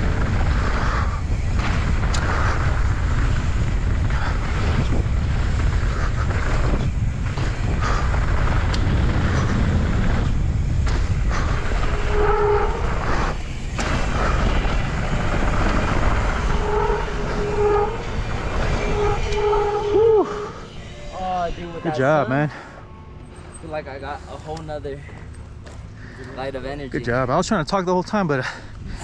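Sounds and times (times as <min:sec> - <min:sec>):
wind rumbling on microphone: 0:00.0 - 0:20.9
bike tyres on dirt trail: 0:00.0 - 0:26.9
disc brakes squealing: 0:00.5 - 0:26.2.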